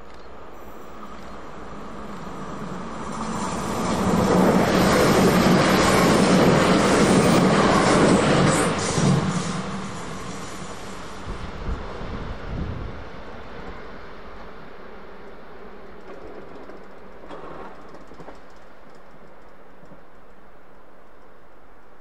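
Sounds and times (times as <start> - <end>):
train rumble: 0.0 - 22.0
faint clicks: 16.0 - 20.4.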